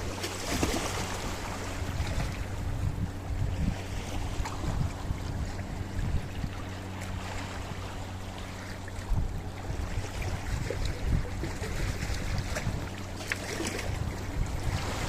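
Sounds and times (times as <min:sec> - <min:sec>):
waves washing against rocky shore: 0:11.8 - 0:15.0.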